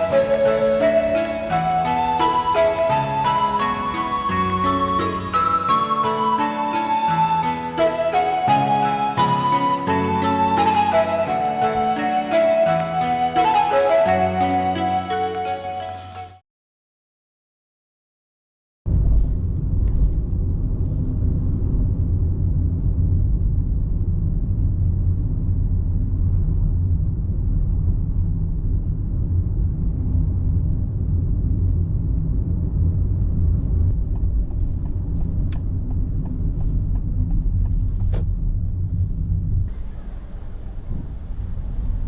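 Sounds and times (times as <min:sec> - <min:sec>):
car engine and road noise: 0:18.9 - 0:42.0.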